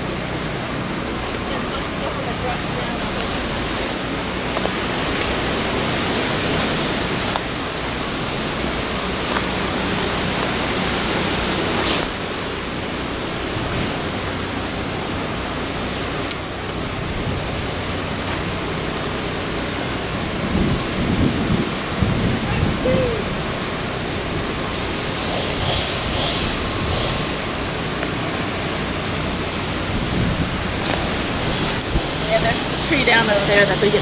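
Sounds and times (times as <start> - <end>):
wind buffeting microphone: 19.9 - 27.8, 29.5 - 34.0.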